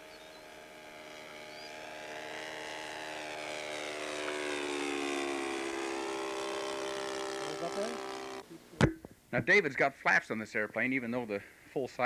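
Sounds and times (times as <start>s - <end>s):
model airplane engine and propeller: 0.0s - 8.5s.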